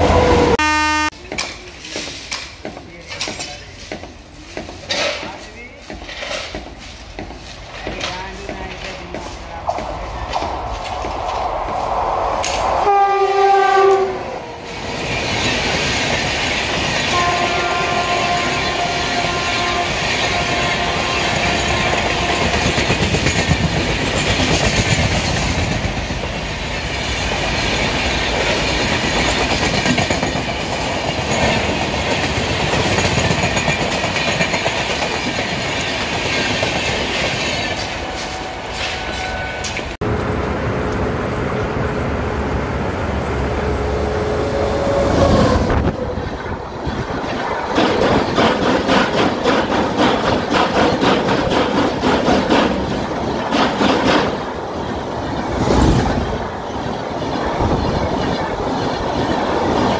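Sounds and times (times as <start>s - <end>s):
locomotive horn: 0.0s - 1.2s, 12.8s - 14.4s, 17.1s - 22.7s, 38.2s - 45.9s
train coaches rumbling: 0.0s - 59.9s.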